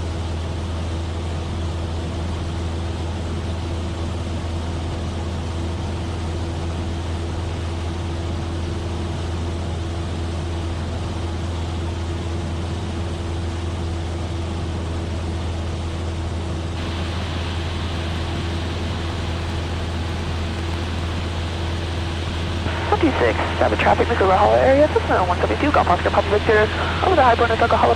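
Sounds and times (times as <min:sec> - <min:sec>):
aircraft engine and propeller droning: 0:16.8 - 0:27.9
bright hiss: 0:16.8 - 0:27.9.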